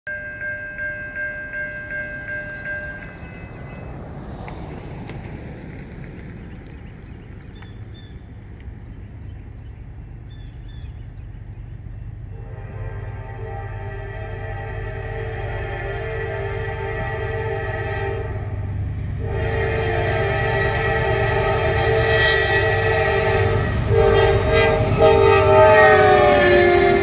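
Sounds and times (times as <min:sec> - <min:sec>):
bell ringing: 0:00.1 - 0:03.9
train locomotive rumble: 0:00.2 - 0:27.0
train horn chord: 0:12.3 - 0:27.0.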